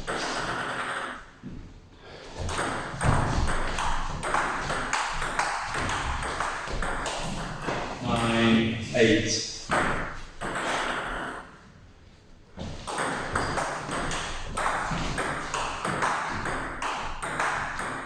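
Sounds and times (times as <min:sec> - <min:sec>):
ball hitting table tennis bats: 0:00.0 - 0:01.6, 0:02.2 - 0:08.3, 0:09.6 - 0:11.6, 0:12.6 - 0:18.0
ball bouncing on table: 0:02.4 - 0:07.9, 0:09.7 - 0:11.3, 0:12.6 - 0:18.0.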